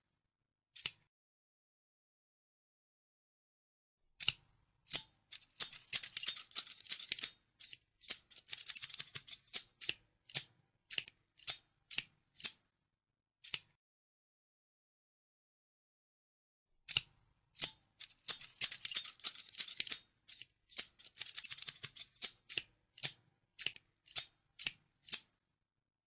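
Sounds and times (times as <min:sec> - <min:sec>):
scissors snipping: 0:00.8 - 0:01.0, 0:04.2 - 0:12.6, 0:13.4 - 0:13.7, 0:16.9 - 0:25.3.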